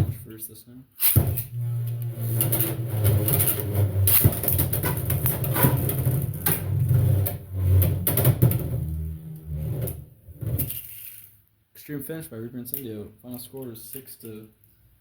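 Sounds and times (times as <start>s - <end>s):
spinning tops whirring: 1.0s - 9.4s.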